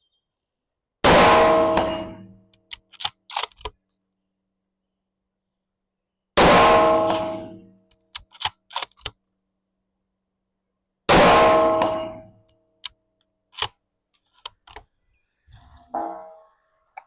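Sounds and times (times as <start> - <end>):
rifle shot: 1.0 - 2.3, 6.4 - 7.6, 11.1 - 12.2
rifle bolt clicks: 2.7 - 3.8, 8.1 - 9.2, 13.6 - 14.9.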